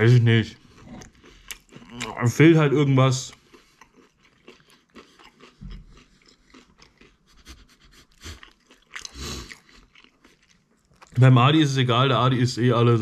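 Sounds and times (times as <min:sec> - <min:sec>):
chewing crunches: 0:00.6 - 0:11.3.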